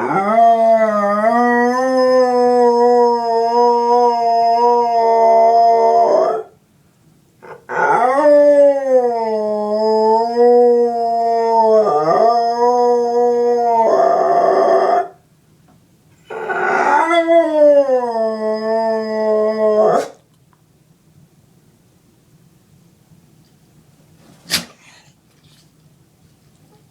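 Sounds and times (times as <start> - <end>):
dog howling: 0.0 - 6.6, 7.4 - 15.2, 16.2 - 20.2.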